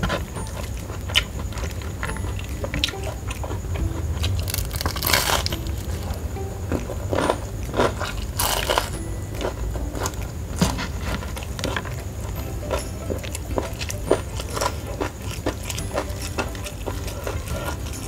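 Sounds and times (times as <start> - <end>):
crunching fried chicken: 0.0 - 18.0.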